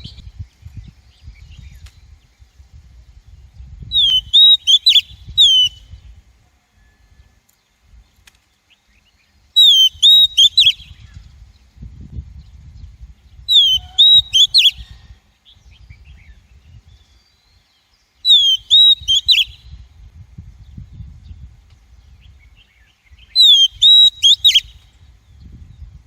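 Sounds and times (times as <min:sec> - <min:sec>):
bird whistling call: 0:03.9 - 0:06.0, 0:09.6 - 0:11.2, 0:13.5 - 0:15.1, 0:18.2 - 0:19.8, 0:22.6 - 0:24.9.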